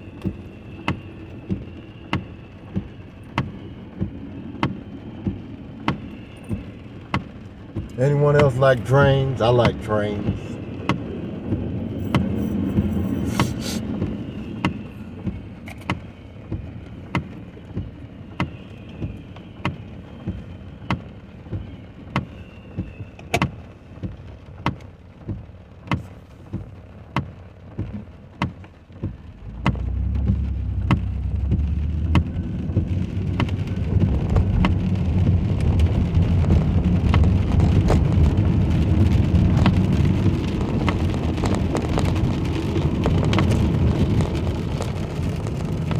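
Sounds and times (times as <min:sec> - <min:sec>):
rain on a car: 0:00.0 - 0:45.9
deep rumble: 0:03.6 - 0:15.7, 0:28.9 - 0:45.9
regular clicking: 0:27.9 - 0:33.7.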